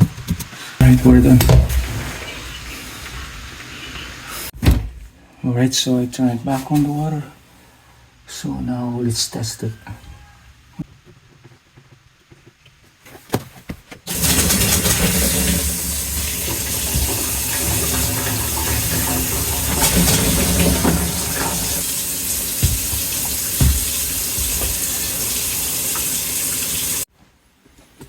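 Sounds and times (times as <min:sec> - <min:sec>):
kitchen faucet running into sink: 0:00.8 - 0:04.4, 0:14.1 - 0:27.1.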